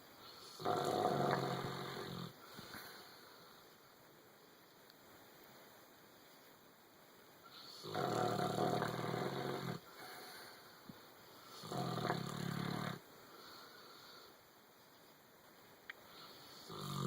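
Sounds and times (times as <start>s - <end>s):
dog snoring: 0.4s - 2.9s, 7.5s - 10.3s, 11.5s - 13.0s, 16.5s - 17.0s.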